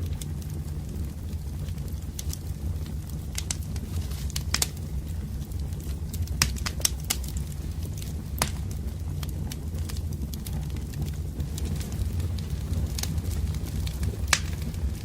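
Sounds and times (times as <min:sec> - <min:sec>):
fire low rumble: 0:00.0 - 0:15.0
wood fire crackling and popping: 0:00.0 - 0:15.0.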